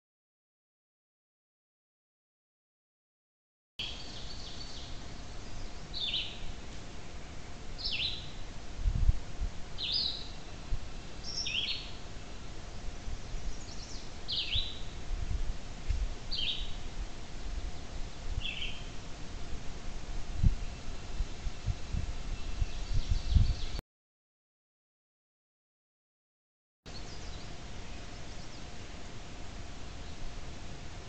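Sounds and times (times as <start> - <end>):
small bird chirping: 3.8 - 6.5, 7.8 - 8.4, 9.8 - 10.4, 11.0 - 12.0, 12.7 - 15.0, 16.3 - 16.8, 18.3 - 19.0, 20.6 - 23.8, 26.9 - 28.7
faint steady hum: 3.8 - 23.8, 26.9 - 31.0.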